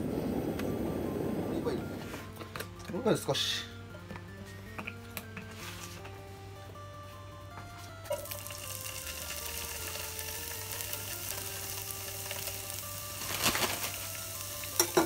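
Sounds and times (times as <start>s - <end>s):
pieces rattling in pan: 8.1s - 15.0s
vegetables sizzling in oil: 8.1s - 15.0s.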